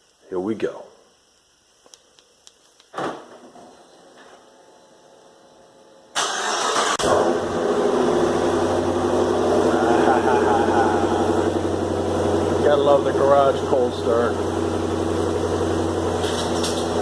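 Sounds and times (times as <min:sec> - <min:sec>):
car engine idling loudly: 0:07.0 - 0:16.8.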